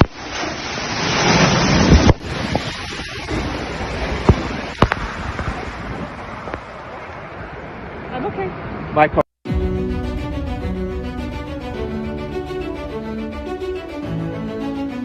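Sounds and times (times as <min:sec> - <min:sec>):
wind and moving water rushing: 0:00.0 - 0:15.0.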